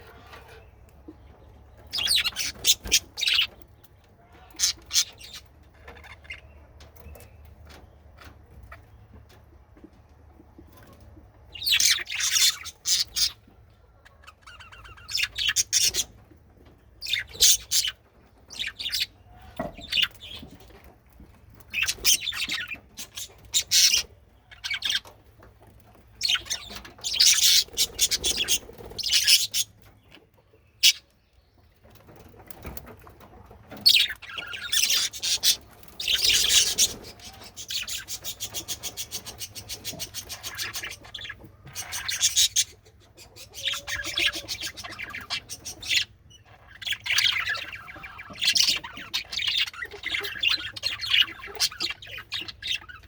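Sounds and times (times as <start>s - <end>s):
budgerigars chirping and chattering: 0.0s - 53.0s.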